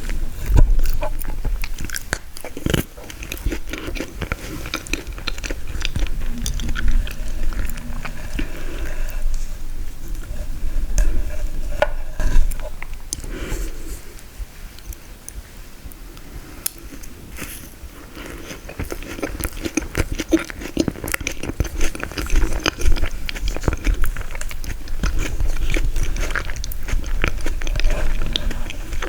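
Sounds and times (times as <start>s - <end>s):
crunchy chewing: 0.0s - 16.0s, 16.6s - 29.0s
wet mouth clicks: 0.8s - 9.4s.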